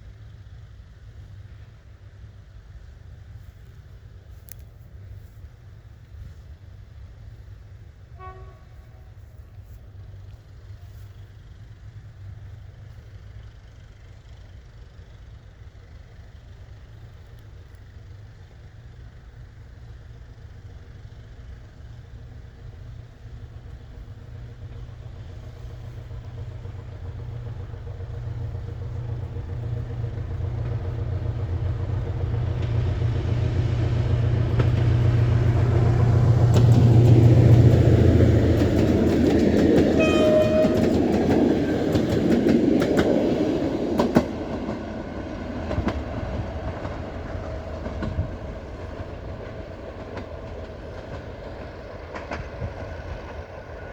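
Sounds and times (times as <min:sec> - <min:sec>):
diesel locomotive engine rumble: 0:00.0 - 0:53.9
train horn signal: 0:08.2 - 0:09.2, 0:39.9 - 0:41.8
rattle of wheels and wagons: 0:09.8 - 0:53.9.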